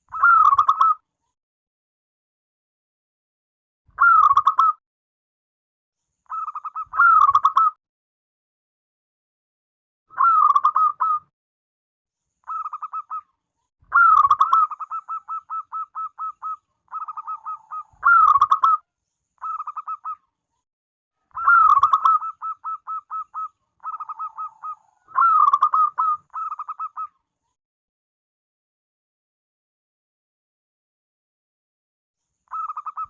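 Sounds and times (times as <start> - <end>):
dove cooing: 13.9 - 18.8, 21.3 - 27.1.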